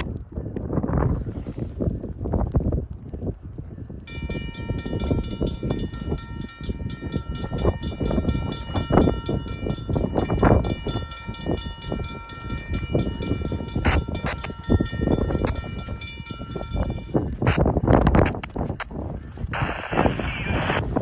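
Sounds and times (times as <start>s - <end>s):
wind on microphone: 0.0s - 21.0s
passing train rumble: 4.1s - 17.2s.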